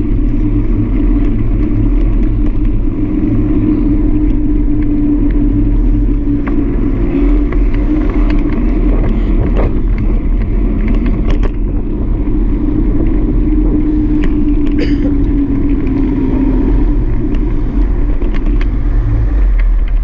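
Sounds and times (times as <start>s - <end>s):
bike ride rumble: 0.0s - 20.0s
clicks and rattles from bumps: 7.3s - 11.9s, 17.1s - 18.8s.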